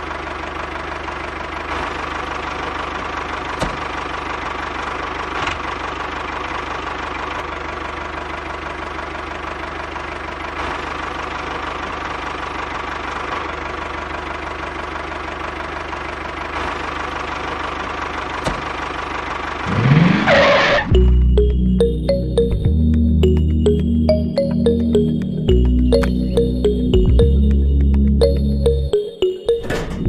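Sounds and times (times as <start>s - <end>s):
small engine running steadily: 0.0s - 19.7s.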